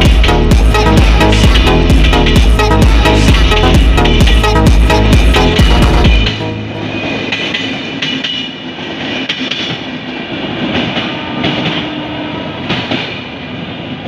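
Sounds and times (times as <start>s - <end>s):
train rolling rumble: 0.0s - 14.0s
wheel clacks over rail joints: 7.1s - 10.0s.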